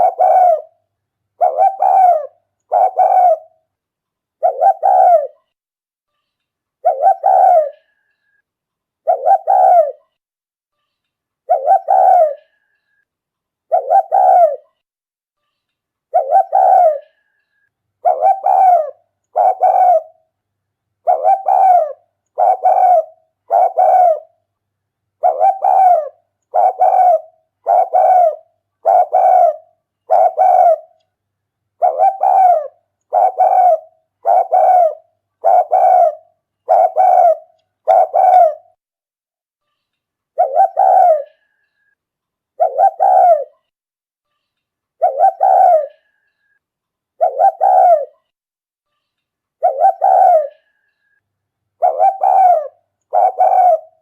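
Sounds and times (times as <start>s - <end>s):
dove cooing: 0.0s - 0.8s, 1.4s - 3.6s, 4.4s - 5.4s, 6.8s - 7.9s, 9.0s - 10.1s, 11.5s - 12.6s, 13.7s - 14.8s, 16.1s - 17.2s, 18.0s - 20.2s, 21.0s - 24.4s, 25.2s - 31.0s, 31.8s - 38.8s, 40.4s - 41.4s, 42.6s - 43.6s, 45.0s - 46.1s, 47.2s - 48.2s, 49.6s - 50.7s, 51.8s - 54.0s.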